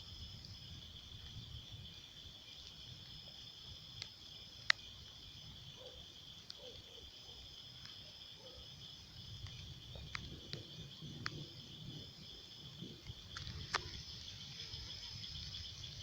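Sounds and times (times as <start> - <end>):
crickets trilling: 0.0 - 16.0
sharp ticks: 3.9 - 4.9, 9.3 - 11.5, 13.0 - 14.1.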